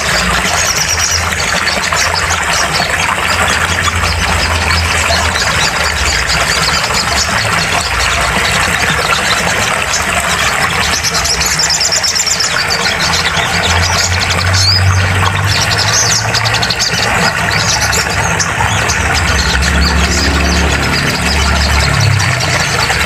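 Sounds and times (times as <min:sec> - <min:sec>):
low hum: 0:17.4 - 0:23.0.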